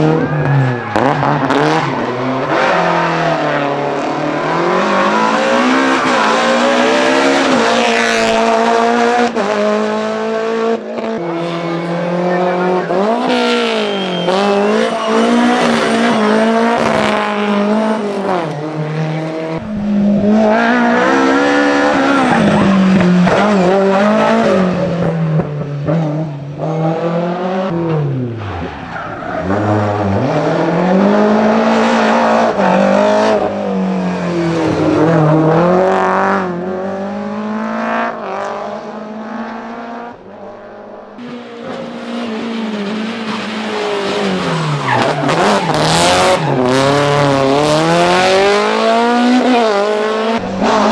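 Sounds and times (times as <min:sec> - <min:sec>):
tyres squealing: 0:00.0 - 0:08.5, 0:13.3 - 0:16.9, 0:19.6 - 0:24.6, 0:27.7 - 0:30.8
car engine revving hard: 0:00.0 - 0:50.9.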